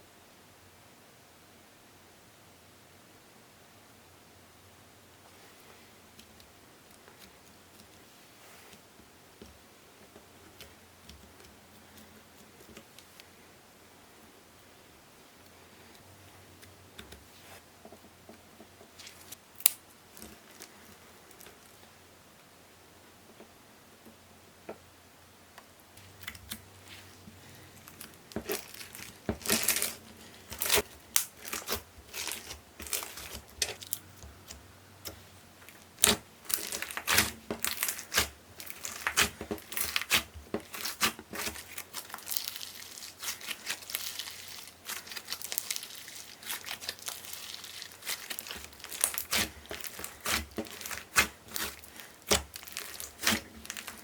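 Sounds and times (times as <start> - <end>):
slime kneaded with sticky clicks: 27.8 - 54.0.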